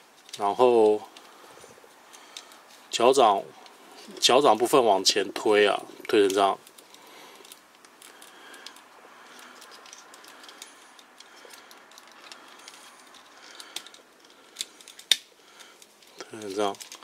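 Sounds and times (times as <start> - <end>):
plastic toy parts clicking: 9.4 - 17.0.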